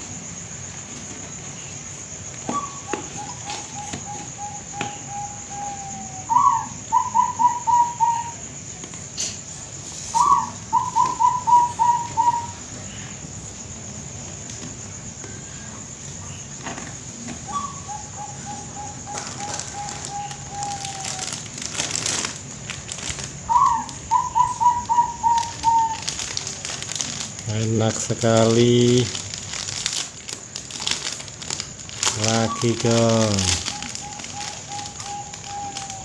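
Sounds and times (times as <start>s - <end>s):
dove cooing: 2.5s - 8.5s, 10.1s - 12.7s, 17.4s - 22.3s, 23.1s - 26.4s, 32.0s - 36.0s.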